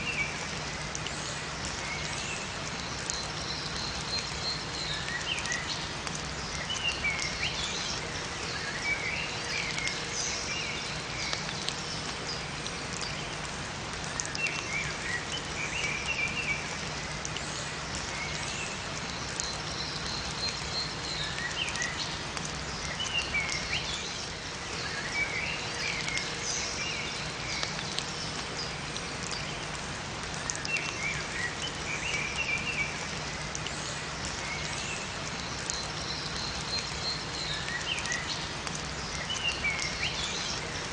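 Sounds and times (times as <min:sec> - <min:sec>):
steady rain in a forest: 0:00.0 - 0:40.9
small birds chirping: 0:14.0 - 0:40.9.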